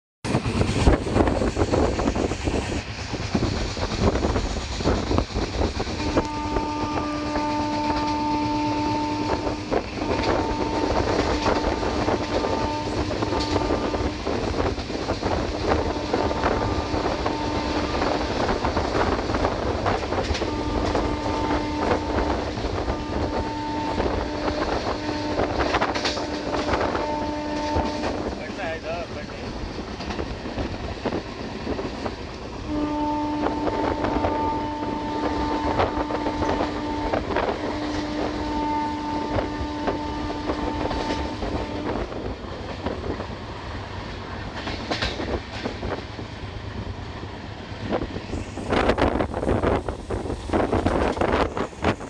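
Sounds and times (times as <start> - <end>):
train rumbling on rails: 0.2 - 52.0
train horn blasts: 6.0 - 14.4, 15.7 - 18.6, 20.2 - 28.3, 32.6 - 42.1.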